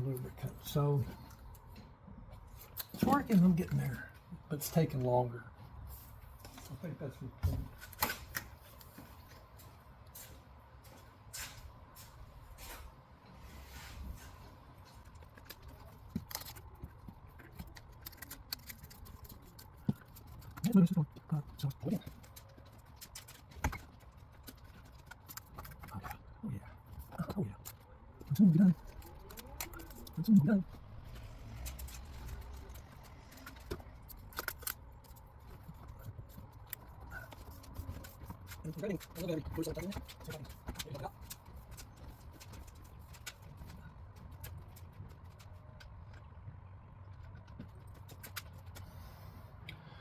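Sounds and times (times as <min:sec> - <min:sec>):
small clicks and ticks: 0:14.9 - 0:26.2, 0:31.0 - 0:46.3.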